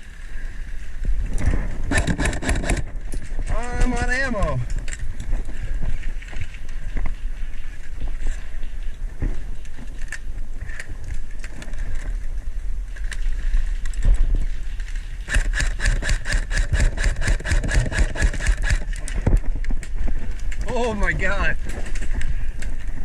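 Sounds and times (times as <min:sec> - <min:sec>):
airsoft gun rapid fire: 0:01.9 - 0:02.9, 0:15.3 - 0:18.9.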